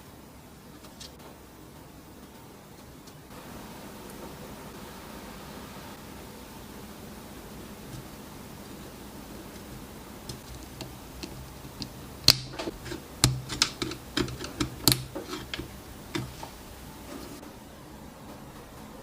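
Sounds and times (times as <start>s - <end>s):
small hard parts clicking: 9.6s - 16.5s.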